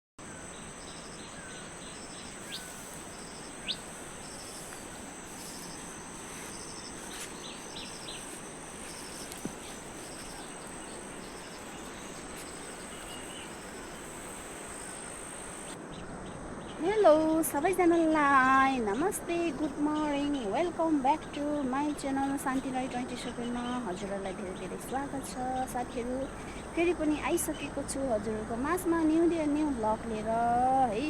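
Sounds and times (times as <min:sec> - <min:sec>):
insects trilling: 0:00.2 - 0:31.0
bird calls: 0:00.4 - 0:16.8.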